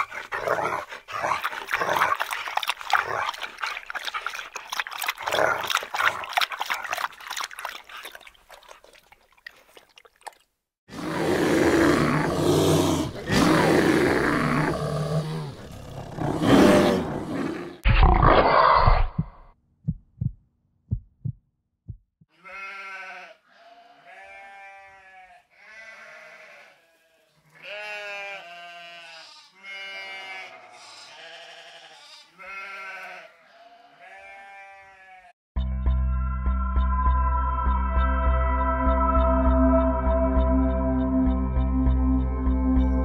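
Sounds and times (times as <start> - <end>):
bears growling and grunting: 0.0 - 7.0, 10.9 - 19.4
goats bleating: 22.4 - 35.3.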